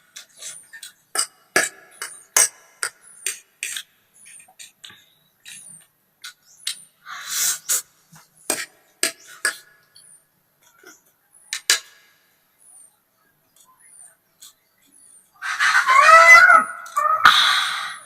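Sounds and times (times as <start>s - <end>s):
wavering pitched cry: 15.4s - 18.0s.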